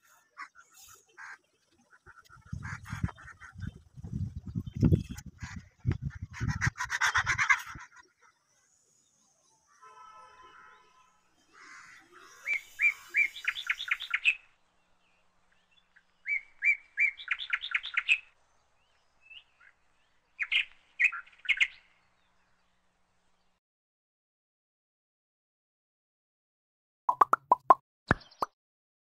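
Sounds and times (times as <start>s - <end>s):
small bird chirping: 0.0s - 6.1s, 12.2s - 14.4s, 15.7s - 18.4s.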